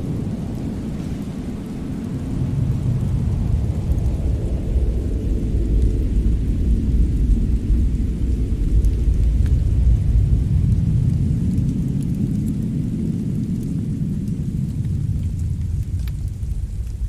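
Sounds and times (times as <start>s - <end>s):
fire burning: 0.0s - 17.0s
fire crackling: 0.0s - 17.0s.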